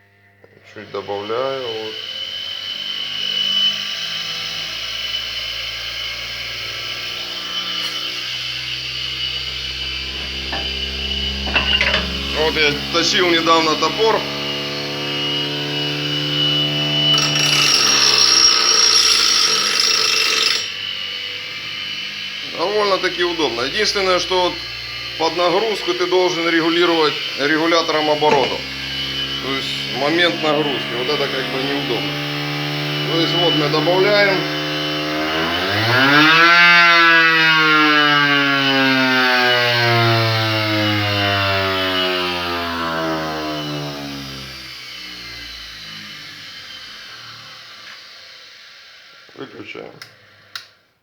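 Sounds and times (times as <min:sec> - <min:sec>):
bench grinder motor humming: 0:00.7 - 0:48.2
harsh grinding hiss: 0:17.1 - 0:32.1.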